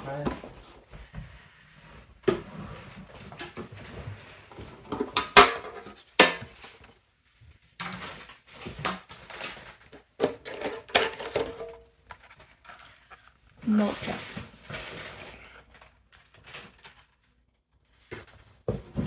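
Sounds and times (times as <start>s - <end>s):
metal tin clanking and rattling: 10.3s - 11.8s.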